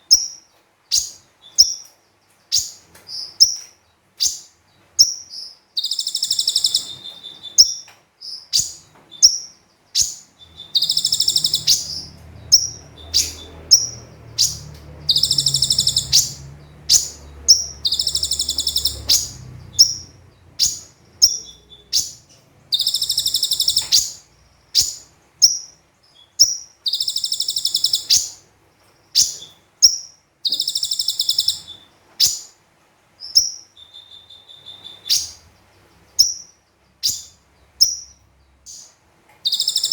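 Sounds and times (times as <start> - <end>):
bird high chirps: 0.0 - 32.6, 33.2 - 39.9
bird buzzing trill: 10.7 - 21.4.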